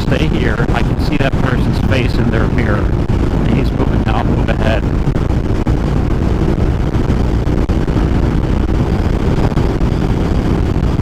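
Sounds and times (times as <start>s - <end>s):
motorcycle engine running: 0.0s - 11.0s
wind rushing over microphone: 0.0s - 11.0s.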